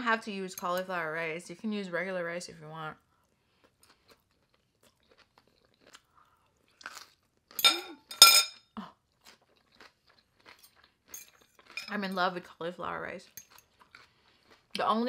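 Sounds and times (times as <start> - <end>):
crunchy chewing: 3.2 - 7.6, 9.1 - 11.8.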